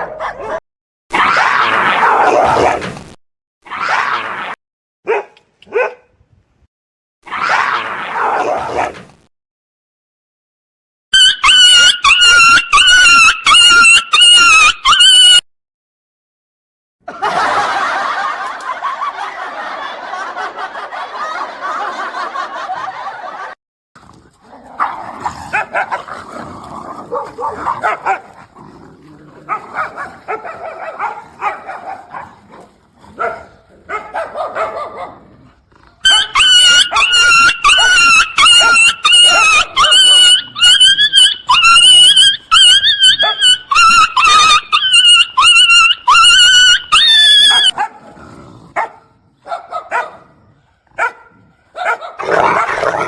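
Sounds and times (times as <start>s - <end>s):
dogs barking and yipping: 0.0s - 0.6s, 5.1s - 6.0s, 11.2s - 15.4s, 24.6s - 53.0s
dog yelping high-pitched: 0.0s - 2.7s, 5.1s - 6.0s, 11.2s - 15.4s, 24.8s - 26.1s, 27.1s - 28.4s, 29.5s - 32.3s, 33.2s - 35.1s, 36.0s - 48.0s, 48.8s - 50.2s, 51.0s - 51.2s, 51.8s - 53.0s.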